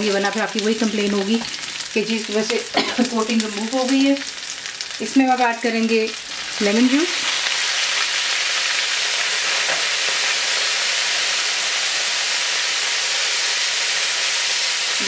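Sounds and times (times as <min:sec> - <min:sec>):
food sizzling in hot oil: 0:00.0 - 0:15.0
steam hissing: 0:09.2 - 0:15.0.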